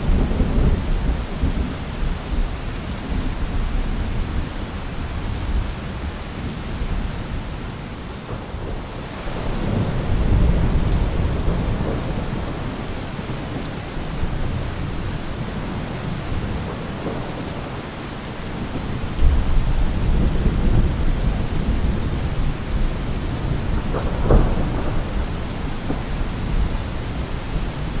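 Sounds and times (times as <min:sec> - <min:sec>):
heavy rain: 0:00.0 - 0:28.0
rolling thunder: 0:18.6 - 0:28.0
sharp thunderclap: 0:23.4 - 0:26.7.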